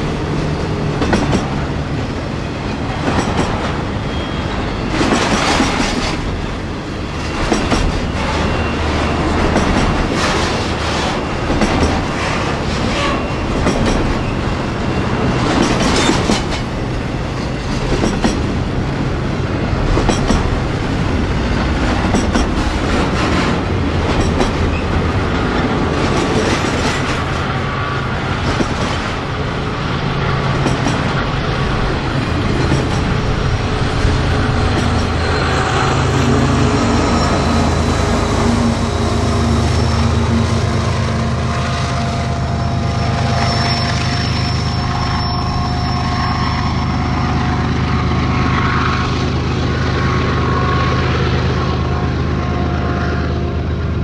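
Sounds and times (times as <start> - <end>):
train wheels clicking over rail joints: 0.0 - 4.1, 4.9 - 35.6.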